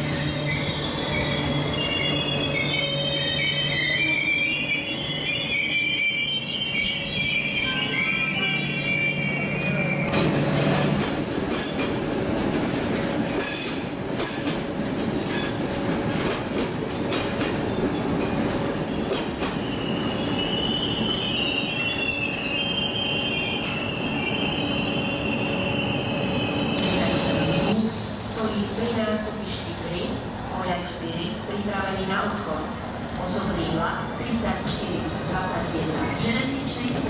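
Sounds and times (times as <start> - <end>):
train wheels squealing on rails: 0.0 - 12.0, 13.4 - 15.9, 16.9 - 28.4, 35.9 - 36.5.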